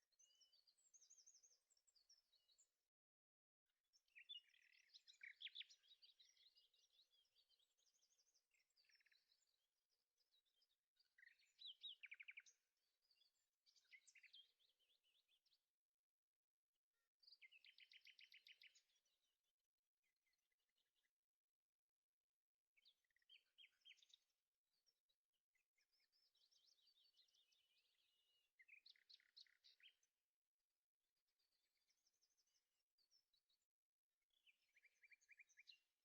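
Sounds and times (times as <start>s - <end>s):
birds chirping and trilling: 0.1s - 2.9s, 3.9s - 15.7s, 17.2s - 19.3s, 22.8s - 30.2s, 31.3s - 33.7s, 34.3s - 36.0s.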